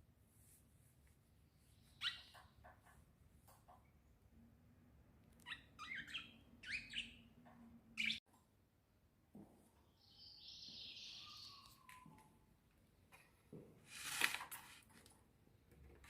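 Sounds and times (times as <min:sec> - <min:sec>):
small birds chirping: 0:01.4 - 0:04.2, 0:05.3 - 0:08.2, 0:09.8 - 0:12.3.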